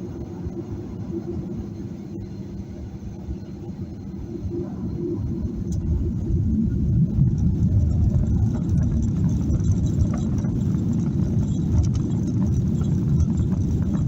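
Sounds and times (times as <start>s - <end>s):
jet engine deep rumble: 0.0s - 14.0s.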